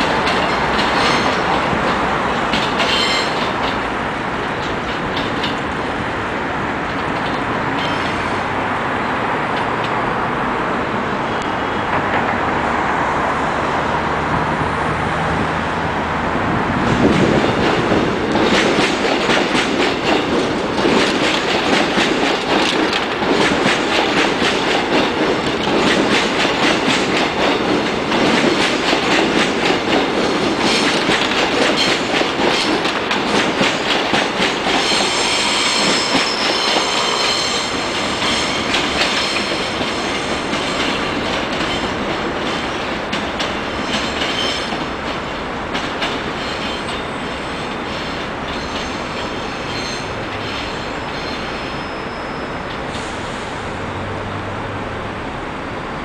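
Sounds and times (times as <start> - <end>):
train wheels clicking over track: 0.0 - 8.4, 16.7 - 51.6
high wheel squeal: 2.8 - 3.4, 7.8 - 8.5, 34.8 - 41.0, 46.4 - 53.6.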